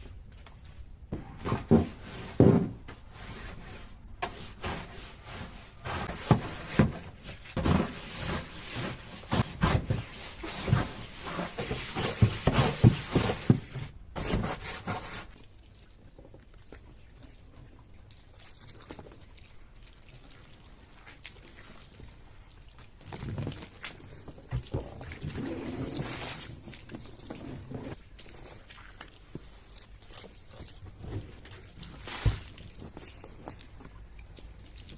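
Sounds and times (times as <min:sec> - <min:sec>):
scrubbing strokes: 0:01.4 - 0:15.4.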